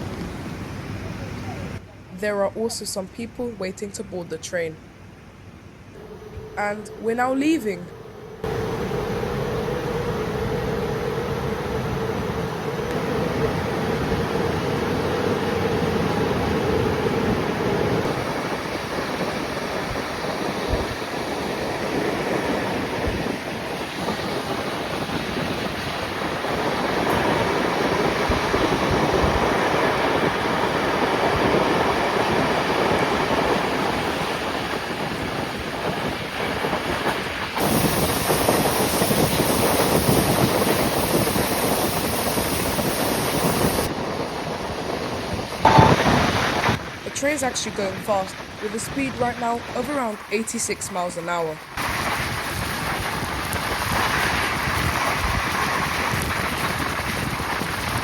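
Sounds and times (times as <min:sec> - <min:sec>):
train rumbling on rails: 0:05.8 - 0:50.3, 0:51.6 - 0:58.0
bright rushing hiss: 0:37.6 - 0:44.0.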